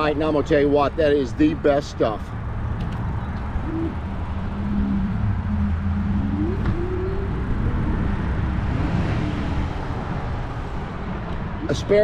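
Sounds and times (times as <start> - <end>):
traffic noise: 0.0 - 12.0
wind and road rumble: 0.0 - 12.0
low hum rising in pitch: 3.1 - 11.2.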